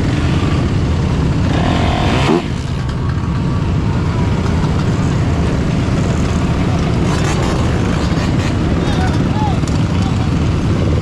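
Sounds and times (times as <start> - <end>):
dirt bike and atv engines running: 0.0 - 11.0
engine revving: 1.4 - 3.0, 5.6 - 9.3.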